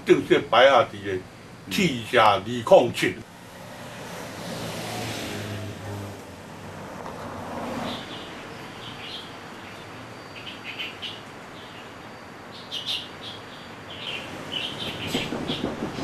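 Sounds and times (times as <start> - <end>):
background noise: 0.0 - 16.0
small birds chirping: 7.8 - 16.0.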